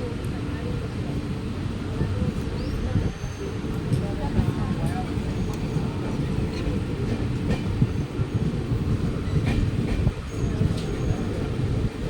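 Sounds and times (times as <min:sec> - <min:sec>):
train rumbling on track: 0:00.0 - 0:12.0
wheels clanking on rails: 0:03.8 - 0:12.0.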